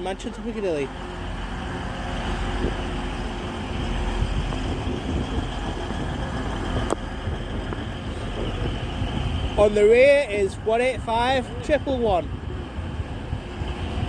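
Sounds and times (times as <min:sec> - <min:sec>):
diesel train passing: 0:00.0 - 0:14.0.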